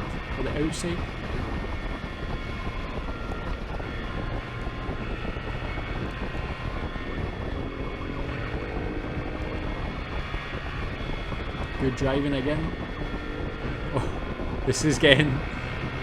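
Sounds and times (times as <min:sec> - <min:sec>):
motorcycle engine at speed: 0:00.0 - 0:16.0
wind and road noise: 0:00.0 - 0:16.0.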